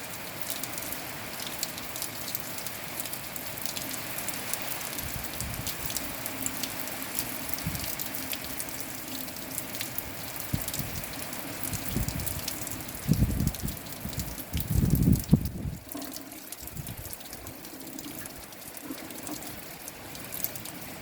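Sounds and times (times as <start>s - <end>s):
rain drops ticking: 0.0s - 21.0s
wind buffeting microphone: 5.0s - 6.0s, 7.6s - 7.9s, 10.4s - 15.9s, 16.6s - 17.6s.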